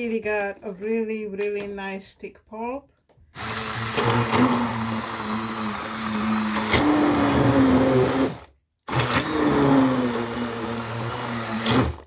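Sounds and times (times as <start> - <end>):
immersion blender churning pulp: 3.4 - 12.0.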